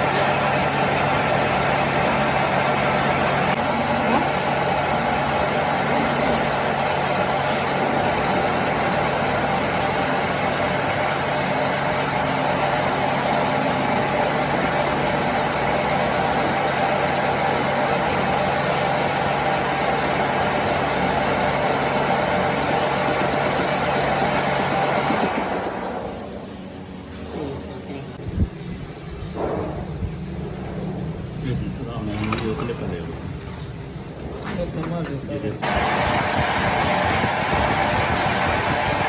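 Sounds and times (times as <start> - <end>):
machine humming: 35.6 - 39.0.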